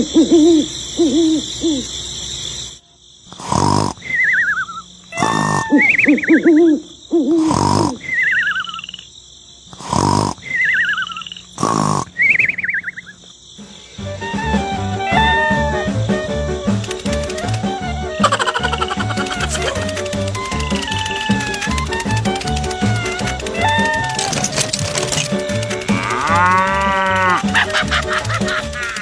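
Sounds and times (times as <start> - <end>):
hooting animal calls: 0.0 - 2.8, 3.4 - 9.1, 9.8 - 13.2, 15.0 - 16.1, 16.9 - 29.0
warbling whistle-like chirps: 4.1 - 5.0, 5.7 - 6.7, 8.0 - 9.1, 12.2 - 13.2.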